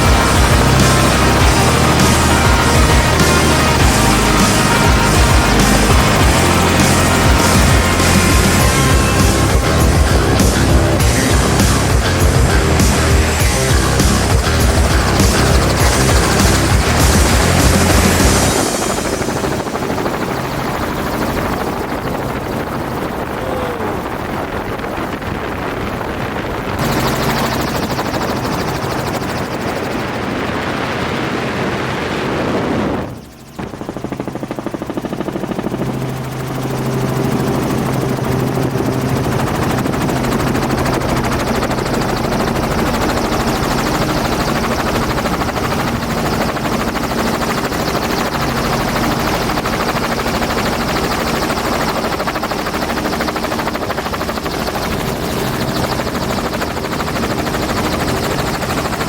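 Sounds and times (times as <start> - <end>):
dirt bike engine: 0.0 - 25.8.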